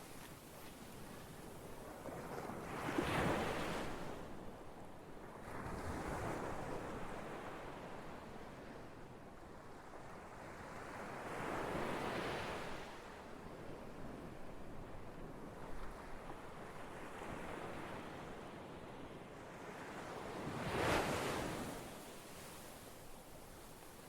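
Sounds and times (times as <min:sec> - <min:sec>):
ocean waves breaking on shore: 0:15.8 - 0:24.0.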